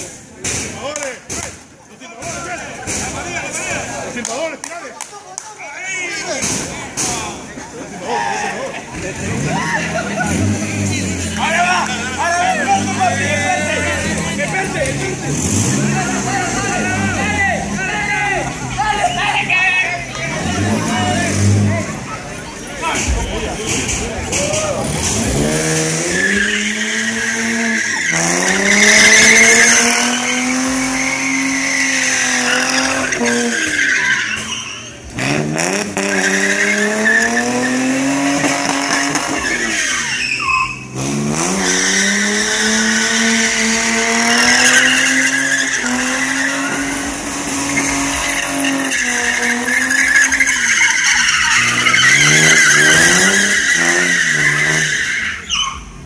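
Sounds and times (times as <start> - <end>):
tyres squealing: 5.7 - 56.0
car engine revving hard: 8.9 - 18.9, 20.1 - 22.4, 24.7 - 56.0.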